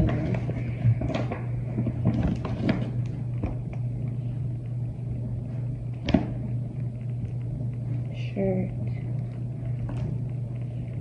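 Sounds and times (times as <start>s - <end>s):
clothes and packaging rustling: 0.0s - 3.2s
steady low hum: 0.0s - 11.0s.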